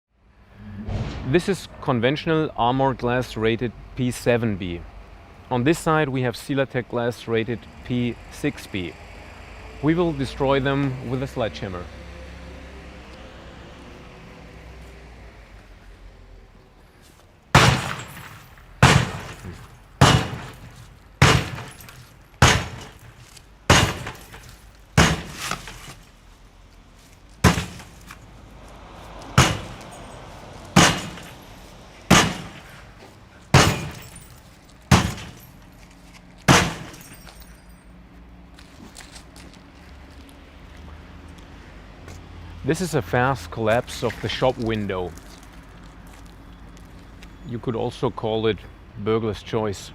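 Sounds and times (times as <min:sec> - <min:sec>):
sledgehammer breaking glass: 0:17.5 - 0:26.0, 0:27.4 - 0:28.2, 0:29.4 - 0:32.9, 0:33.5 - 0:35.6, 0:36.5 - 0:37.6.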